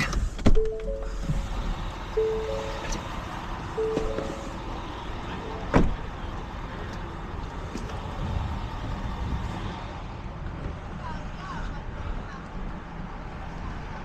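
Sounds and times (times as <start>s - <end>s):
vehicle running noise: 0.0s - 14.0s
short beeps: 0.6s - 1.4s, 2.2s - 3.0s, 3.8s - 4.6s.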